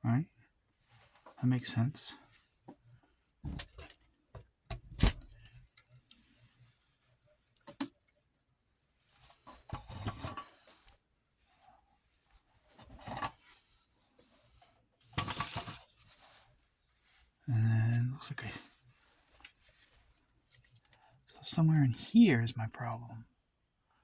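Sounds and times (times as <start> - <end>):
parts scraping and shuffling: 14.2 - 16.6.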